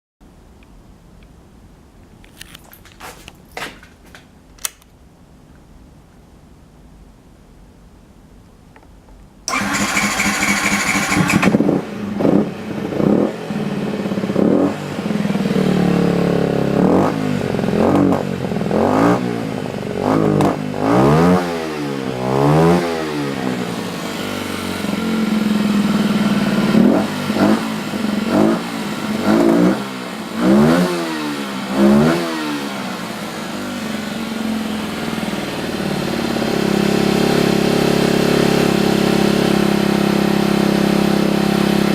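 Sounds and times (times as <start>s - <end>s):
starter motor cranking: 9.5s - 11.6s
motorcycle engine revving: 9.5s - 41.9s.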